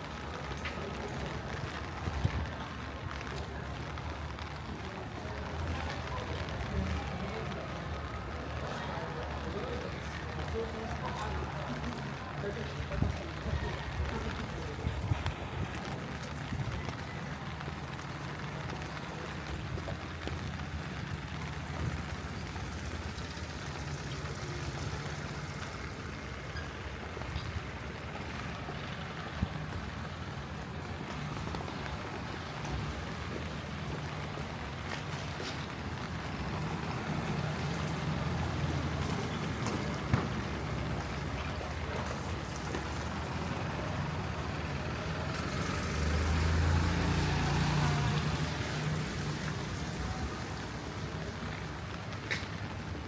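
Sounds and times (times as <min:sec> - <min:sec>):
raindrop ticks: 0:00.0 - 0:53.0
steady rain falling: 0:00.0 - 0:53.0
vehicle engine hum: 0:17.5 - 0:52.0.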